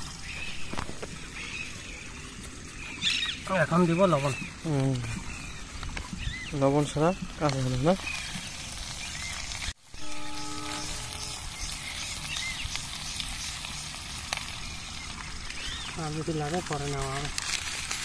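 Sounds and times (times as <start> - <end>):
potatoes sizzling in oil: 0.0 - 18.0
short steady pitched tone: 9.9 - 12.0.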